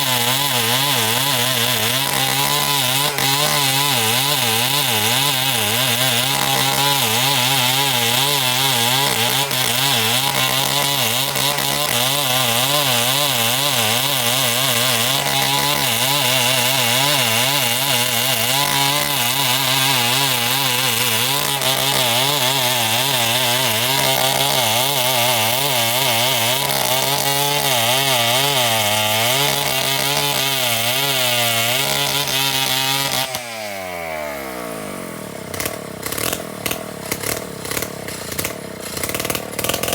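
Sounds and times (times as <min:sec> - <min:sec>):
chainsaw cutting timber: 0:00.0 - 0:39.9.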